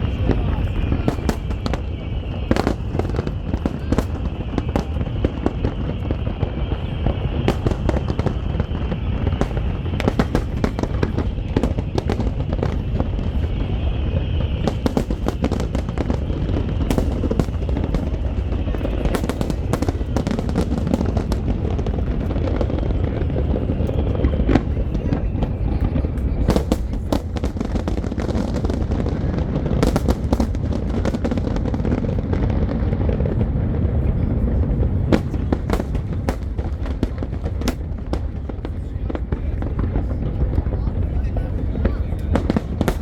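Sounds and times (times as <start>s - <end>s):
fireworks bursting and crackling: 0.0s - 43.0s.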